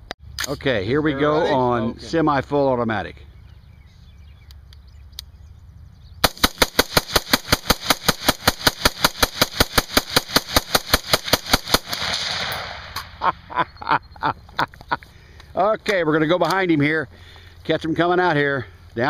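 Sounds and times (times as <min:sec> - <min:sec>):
rifle firing shots: 0:06.2 - 0:13.2.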